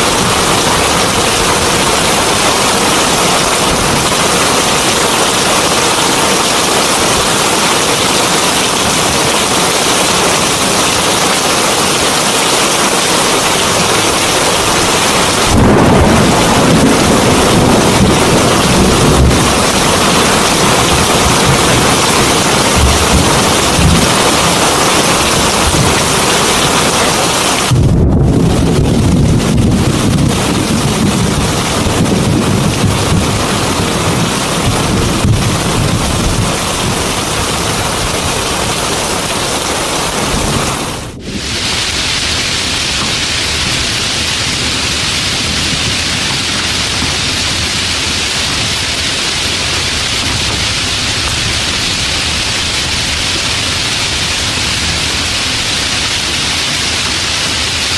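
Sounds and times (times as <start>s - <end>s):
heavy rain pouring: 0.0s - 57.9s
low rumble of thunder: 14.6s - 24.6s, 27.7s - 38.2s.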